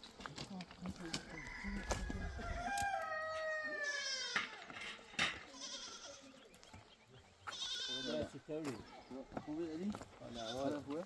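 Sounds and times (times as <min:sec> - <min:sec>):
rooster crowing: 0:01.1 - 0:04.2.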